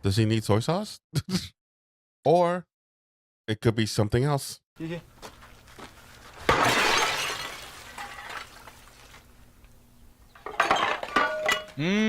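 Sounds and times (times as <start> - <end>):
broken pieces scattering: 6.3 - 9.4, 10.4 - 11.8
smashing crash: 6.4 - 9.0.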